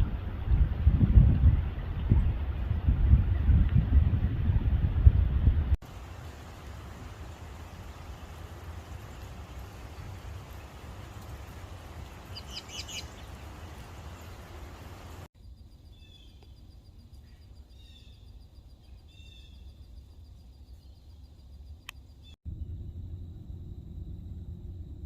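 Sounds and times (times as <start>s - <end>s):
low outdoor rumble: 0.0s - 15.3s, 22.2s - 25.0s
birds chirping: 5.9s - 15.3s.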